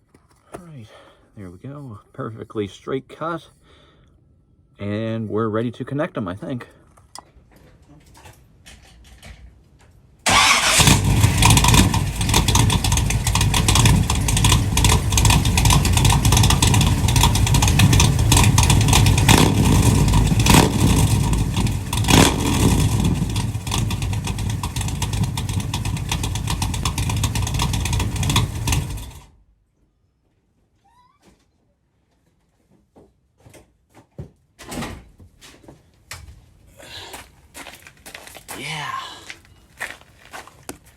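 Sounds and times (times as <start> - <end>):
loud vee eight engine running: 10.3 - 29.2.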